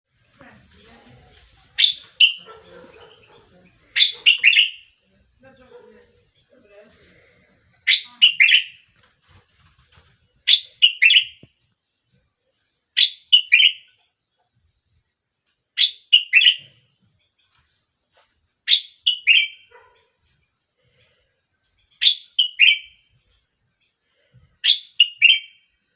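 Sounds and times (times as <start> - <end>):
bird singing whistled notes: 1.8 - 2.4, 10.5 - 11.5, 13.0 - 13.9, 15.8 - 16.7, 18.7 - 19.6, 22.0 - 23.0, 24.6 - 25.6.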